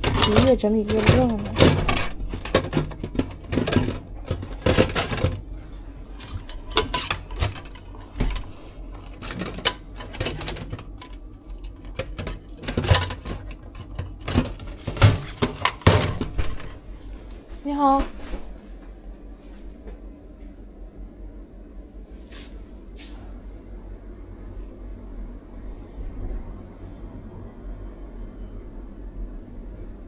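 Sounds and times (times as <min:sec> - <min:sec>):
containers and utensils clattering: 0:00.0 - 0:17.3.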